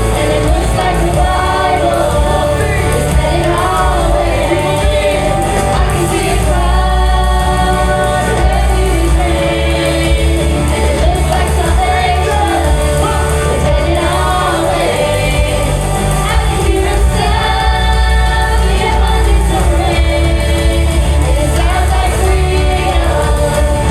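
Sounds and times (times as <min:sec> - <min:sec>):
band with steady bass: 0:00.0 - 0:23.9
voices singing: 0:00.0 - 0:23.9.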